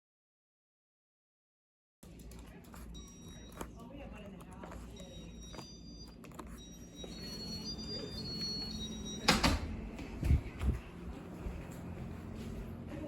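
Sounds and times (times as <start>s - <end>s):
ceiling fan motor hum: 2.1s - 13.0s
faint high whining: 5.0s - 9.6s.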